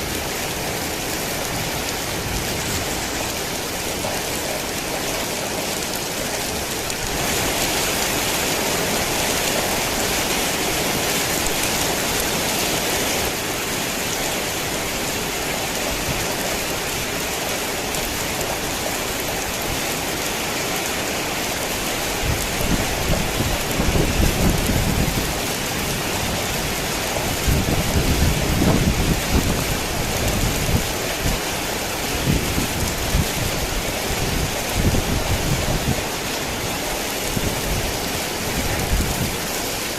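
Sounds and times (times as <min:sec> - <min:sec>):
heavy rain: 0:00.0 - 0:39.9
thunder rumbling: 0:21.9 - 0:36.2.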